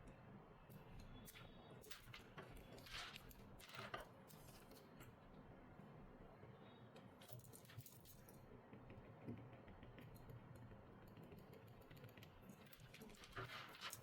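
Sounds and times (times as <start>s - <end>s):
small tools clicking and tapping: 7.2s - 14.0s.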